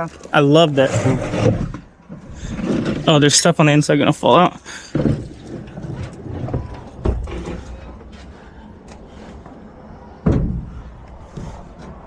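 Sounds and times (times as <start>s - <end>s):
heavy thumps of junk dropped: 4.8s - 7.9s.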